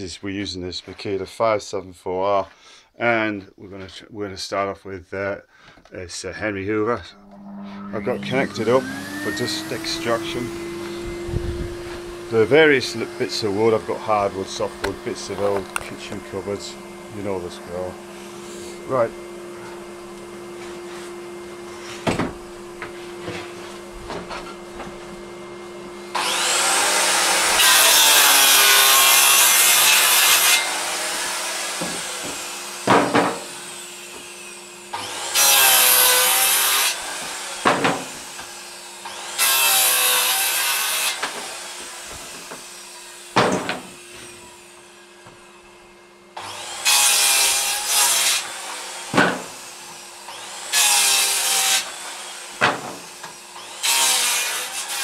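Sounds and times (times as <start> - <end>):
circular saw cutting wood: 6.8 - 55.0
vacuum humming: 6.9 - 51.1, 51.8 - 53.9
sharp knocks: 31.8 - 33.5, 37.6 - 38.2, 43.4 - 43.9, 49.1 - 49.5.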